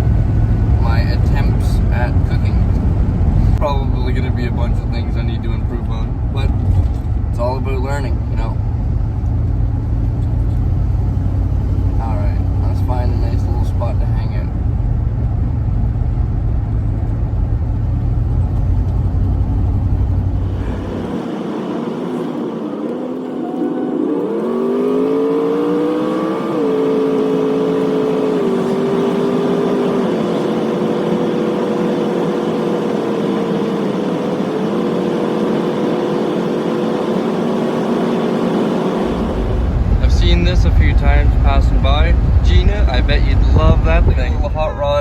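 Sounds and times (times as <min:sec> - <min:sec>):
low road rumble: 0:00.0 - 0:45.0
van engine accelerating: 0:00.0 - 0:45.0.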